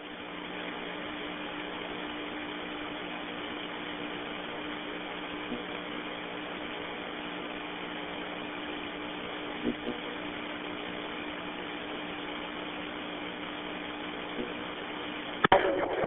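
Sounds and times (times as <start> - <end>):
radio static hiss with hum: 0.0 - 16.0
faint radio clicks: 15.4 - 16.0.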